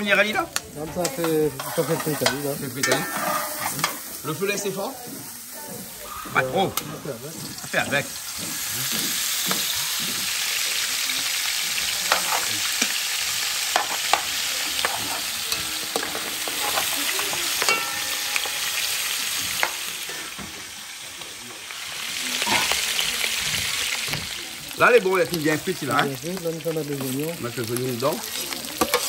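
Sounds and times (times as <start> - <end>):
meat sizzling in a pot: 0.0 - 29.0
metal spoon scraping a pot: 1.0 - 4.2, 12.1 - 12.5, 13.7 - 19.7.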